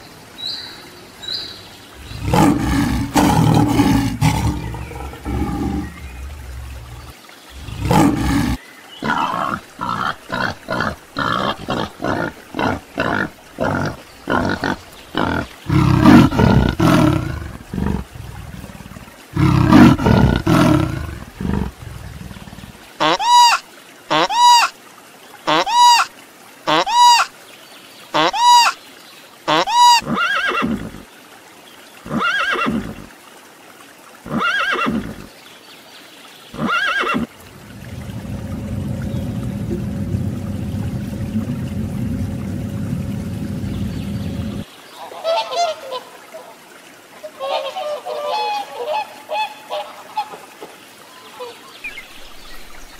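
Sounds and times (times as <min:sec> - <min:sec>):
lion roaring and grunting: 0:02.0 - 0:22.7, 0:36.6 - 0:44.6.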